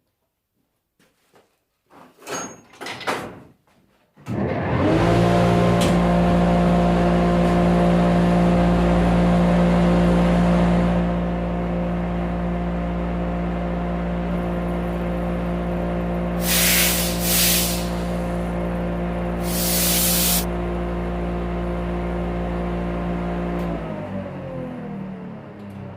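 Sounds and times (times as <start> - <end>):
motor hum: 4.3 - 25.9
sandblast gun hissing: 16.4 - 18.2, 19.4 - 20.5.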